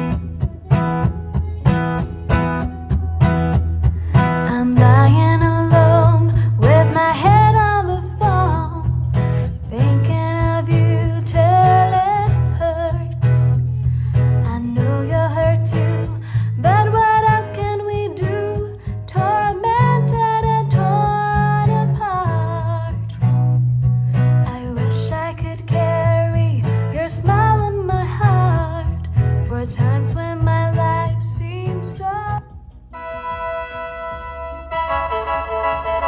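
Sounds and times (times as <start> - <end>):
plucked guitar: 0.0 - 36.0
heavy steady bass line: 32.9 - 36.0
song over loudspeakers: 32.9 - 36.0.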